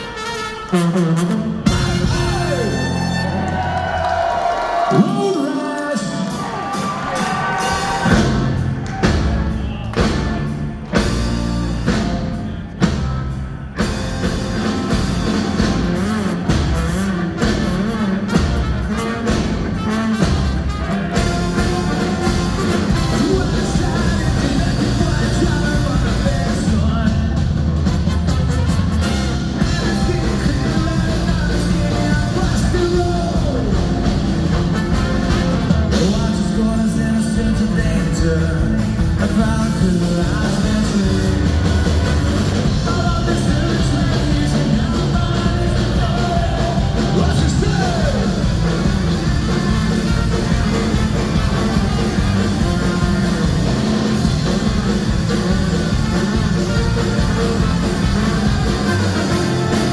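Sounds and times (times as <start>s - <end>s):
ska punk band playing: 0.0s - 59.9s
person singing: 22.7s - 27.6s, 29.6s - 34.2s, 35.6s - 49.6s.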